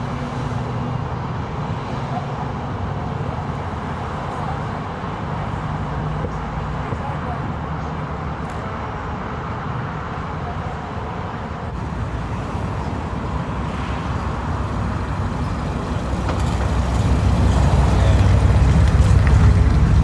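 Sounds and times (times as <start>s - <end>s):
car engine rumbling: 11.7s - 20.0s.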